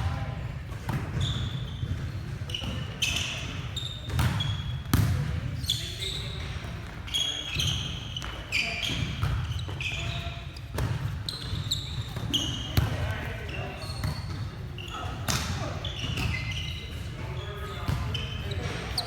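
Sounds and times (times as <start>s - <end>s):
murmur of indoor hall: 0.0s - 19.0s
shoe squeaks: 1.2s - 4.8s, 5.6s - 19.0s
players' voices: 12.2s - 19.0s.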